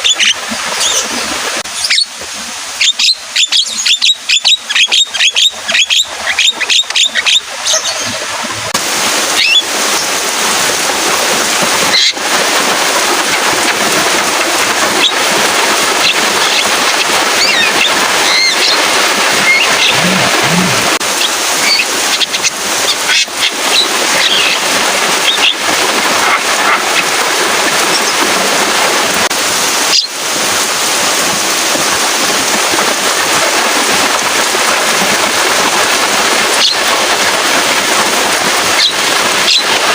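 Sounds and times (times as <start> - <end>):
bird calls and clicking chatter: 0.0 - 1.2, 2.8 - 8.5
steady rain: 0.0 - 39.9.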